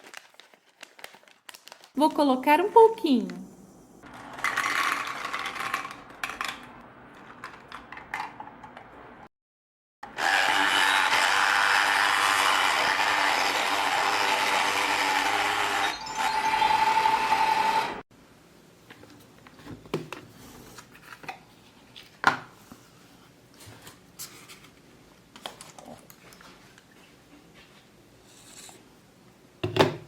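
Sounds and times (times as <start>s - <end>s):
small items rattling and clicking: 4.1s - 8.4s
electric blender running: 10.0s - 18.0s.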